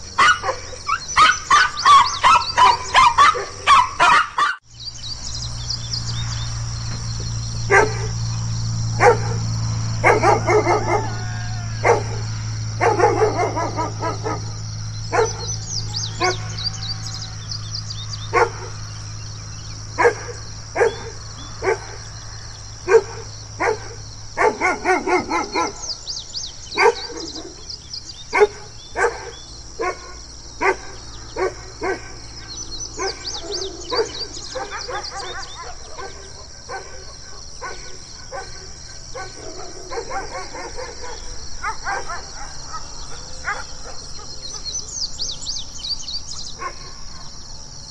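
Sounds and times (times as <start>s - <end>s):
dog barking aggressively: 0.0s - 4.6s, 7.7s - 8.2s, 8.9s - 16.5s, 18.3s - 18.8s, 20.0s - 22.1s, 22.8s - 26.1s, 26.7s - 44.8s, 46.6s - 47.2s
steady low hum: 4.6s - 47.9s.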